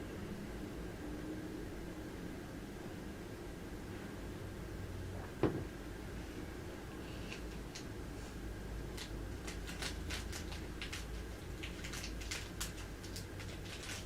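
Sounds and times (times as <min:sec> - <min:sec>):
low steady hum: 0:00.0 - 0:14.0
light clicks and scratches: 0:09.0 - 0:14.0.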